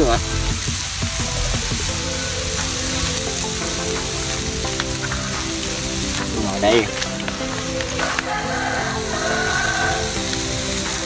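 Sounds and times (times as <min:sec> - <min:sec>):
meat sizzling in a pan: 0:00.6 - 0:11.0.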